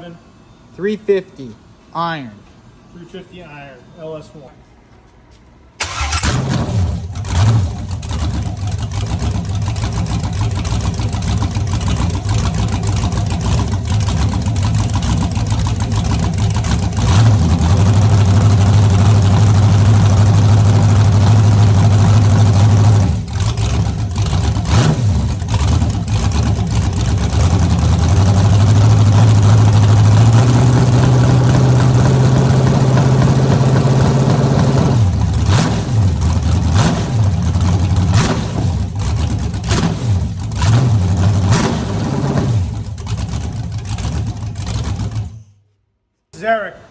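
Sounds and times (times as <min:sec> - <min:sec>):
car engine revving: 0:05.8 - 0:45.4.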